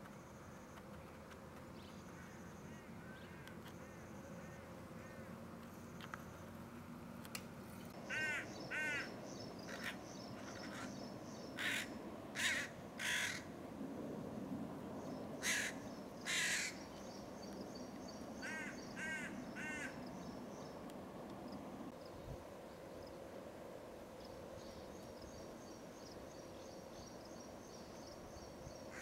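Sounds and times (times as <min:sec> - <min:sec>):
harsh caw-like bird calls: 0:02.2 - 0:05.4, 0:08.0 - 0:13.6, 0:15.4 - 0:17.2, 0:18.4 - 0:20.2
high chirping of small birds: 0:08.2 - 0:11.8.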